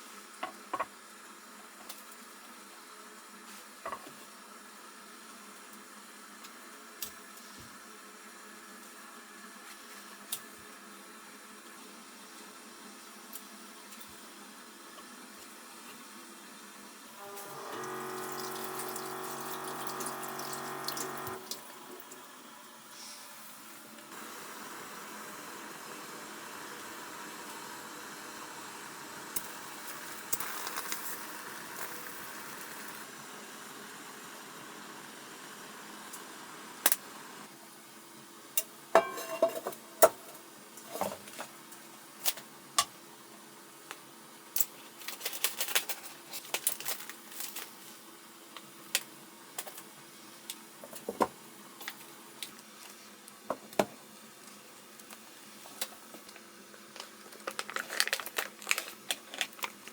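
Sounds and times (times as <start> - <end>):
water running from tap: 17.5 - 21.7
dishes clinking: 39.0 - 39.8.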